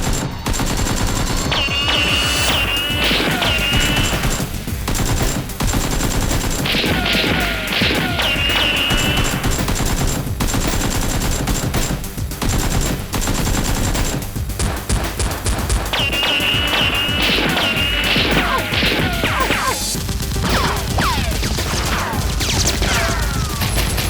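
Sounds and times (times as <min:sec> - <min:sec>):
background music: 0:00.0 - 0:24.0
rapid machine-gun fire: 0:00.0 - 0:24.0
falling whines: 0:01.6 - 0:04.6, 0:16.0 - 0:24.0.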